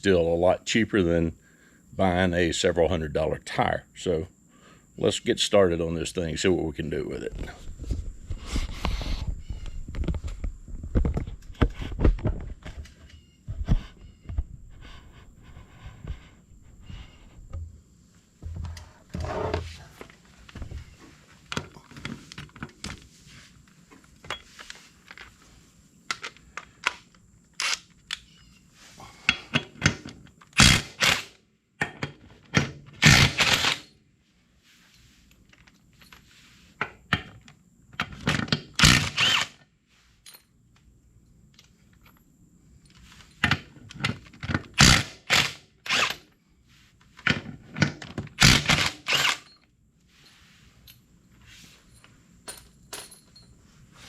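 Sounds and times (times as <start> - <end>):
tool clatter: 51.7 - 53.6.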